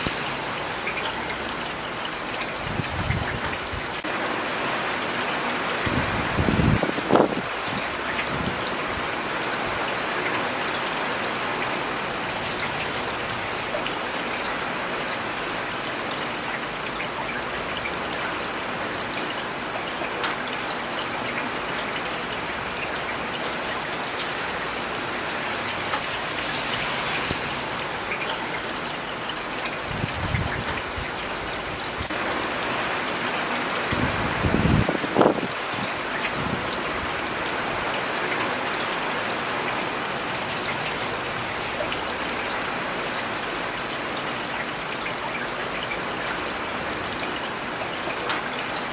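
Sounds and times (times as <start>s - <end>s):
rain pattering on hard surfaces: 0.0s - 48.9s.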